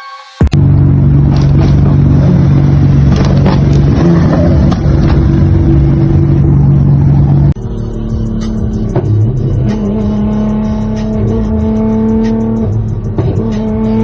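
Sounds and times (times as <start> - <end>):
sharp exhaust cracks: 0.5 - 7.6
sports car engine running: 0.5 - 14.0.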